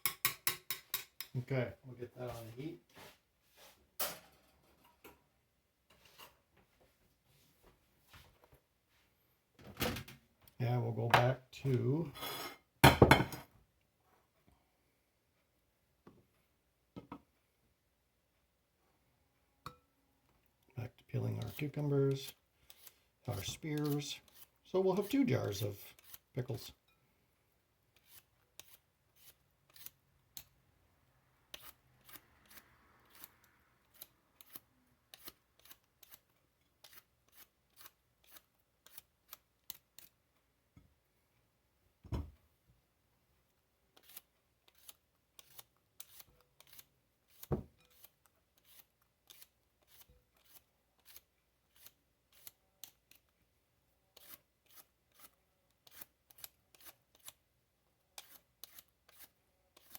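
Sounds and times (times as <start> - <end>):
scraping of cucumbers being peeled: 21.3 - 26.7, 27.9 - 30.5, 31.5 - 40.2, 43.9 - 53.3, 54.1 - 57.4, 58.1 - 59.9.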